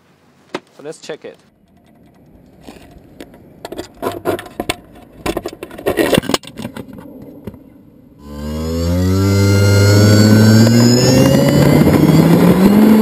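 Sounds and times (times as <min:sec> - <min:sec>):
clicks knocks and scrapes: 0:01.7 - 0:07.6.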